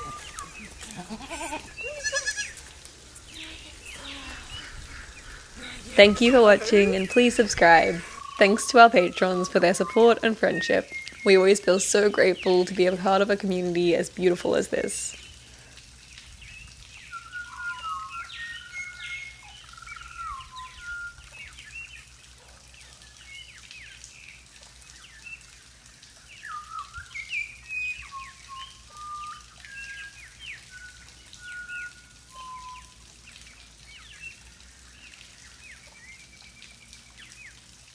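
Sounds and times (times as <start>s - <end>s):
birds chirping and whistling: 0.0s - 12.7s, 16.4s - 22.1s, 26.3s - 37.3s.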